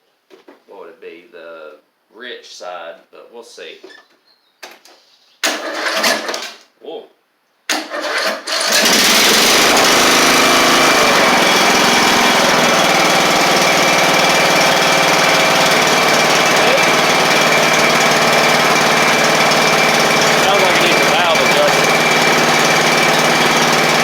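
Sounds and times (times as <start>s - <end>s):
lawn tractor engine starting and running: 5.4s - 6.6s, 7.7s - 24.0s.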